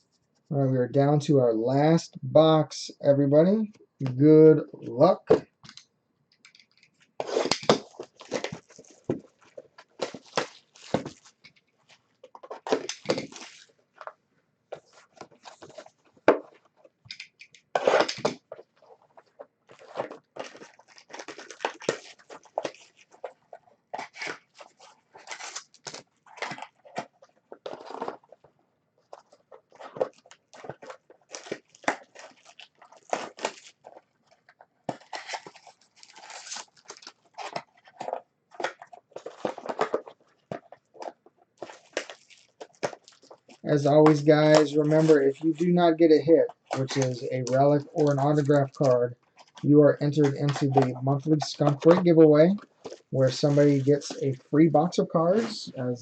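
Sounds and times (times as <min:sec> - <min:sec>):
trading cards rustling: 0:06.4 - 0:14.1, 0:14.7 - 0:28.5, 0:29.1 - 0:56.0
plastic wrapping tearing: 0:07.2 - 0:14.1, 0:17.7 - 0:28.5, 0:29.1 - 0:45.7, 0:46.4 - 0:55.6.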